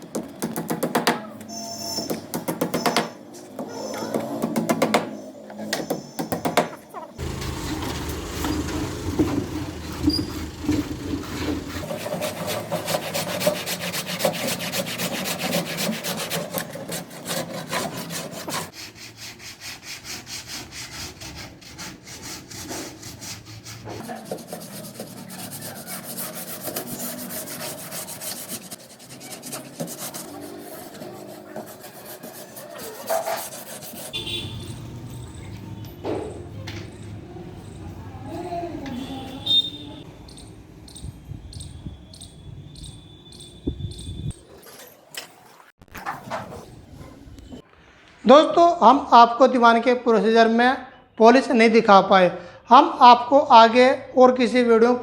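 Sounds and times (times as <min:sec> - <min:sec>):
rubbing strokes on wood: 0:07.2 - 0:34.5.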